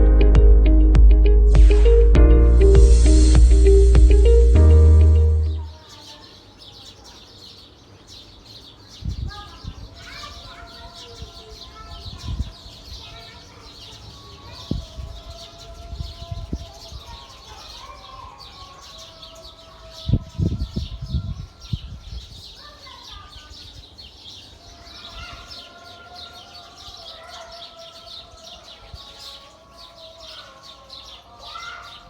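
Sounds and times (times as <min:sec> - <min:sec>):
loud low thumps: 0:00.0 - 0:05.6
steady held tones: 0:00.0 - 0:05.7
small birds chirping: 0:05.4 - 0:32.0.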